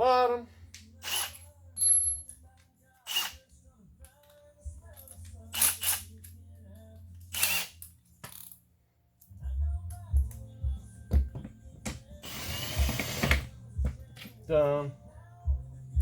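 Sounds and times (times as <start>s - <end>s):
hand tool and hardware noises: 0.7s - 8.6s, 11.1s - 14.4s.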